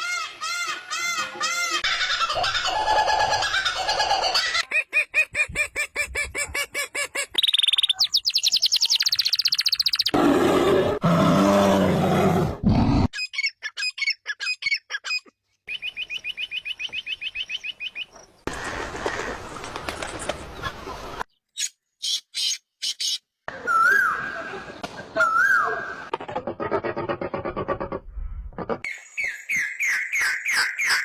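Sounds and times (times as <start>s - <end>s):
birds chirping: 7.3s - 10.2s, 13.2s - 24.3s.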